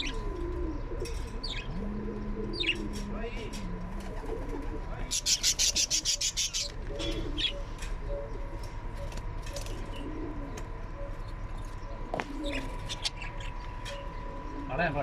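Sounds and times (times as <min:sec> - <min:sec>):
small birds chirping: 0:00.0 - 0:01.8, 0:05.0 - 0:15.0
pigeons cooing: 0:00.0 - 0:15.0.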